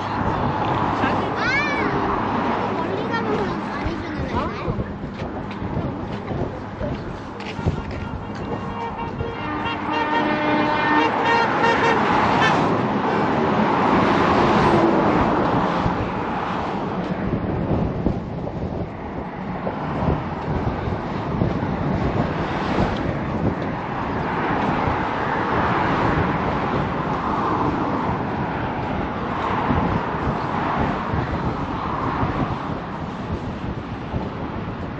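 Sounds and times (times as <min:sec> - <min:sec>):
road traffic noise: 0:00.0 - 0:34.9
horn-like tone: 0:07.7 - 0:12.6.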